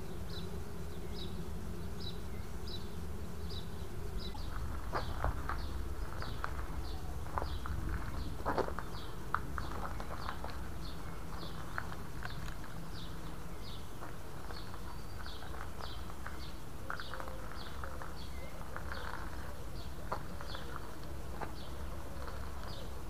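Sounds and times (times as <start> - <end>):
small bird chirping: 0.0 - 23.0
low rumble: 3.8 - 12.2.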